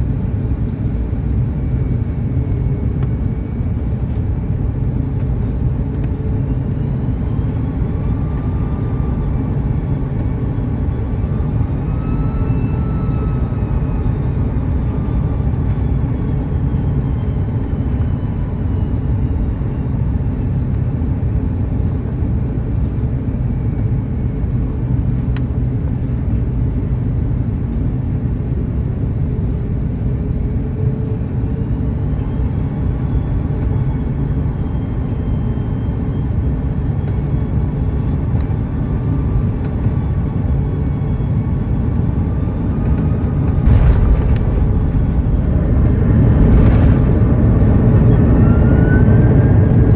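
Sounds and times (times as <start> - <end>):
airliner cabin engine rumble: 0.0 - 49.9
faint engine whines: 0.0 - 49.9.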